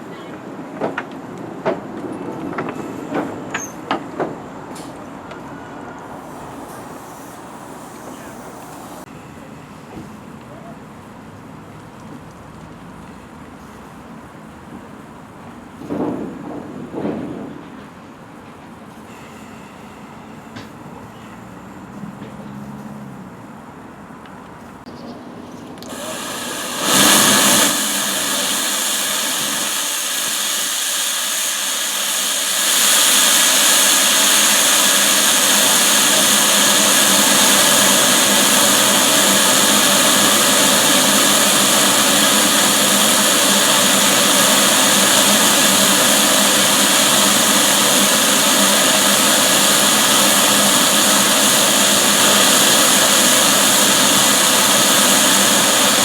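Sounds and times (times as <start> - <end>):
mechanical hissing: 6.1 - 9.1, 25.9 - 56.0.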